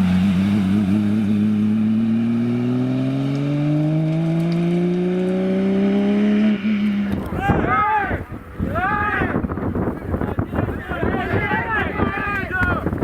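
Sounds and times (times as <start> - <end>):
rally car engine accelerating: 0.0 - 7.5.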